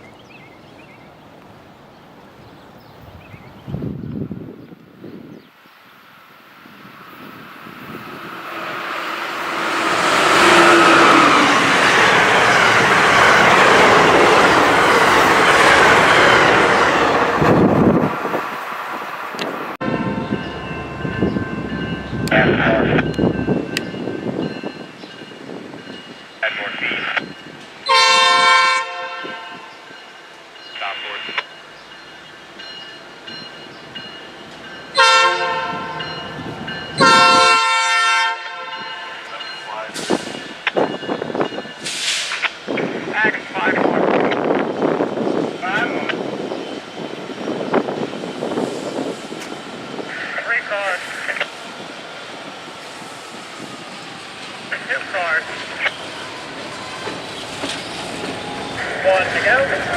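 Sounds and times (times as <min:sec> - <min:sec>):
train wheels on rails: 0:06.4 - 0:26.4, 0:29.6 - 0:59.9
locomotive air horn blasts: 0:27.9 - 0:29.7, 0:35.0 - 0:36.0, 0:37.0 - 0:39.2.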